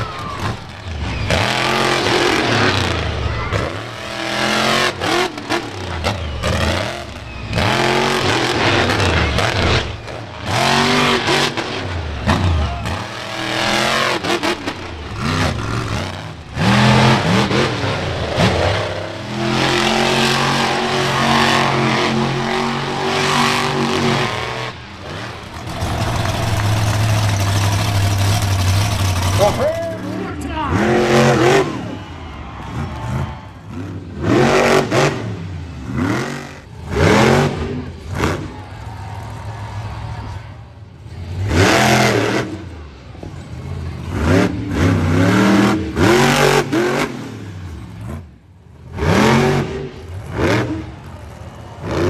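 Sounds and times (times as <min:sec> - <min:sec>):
monster truck engine revving: 0:00.0 - 0:52.0.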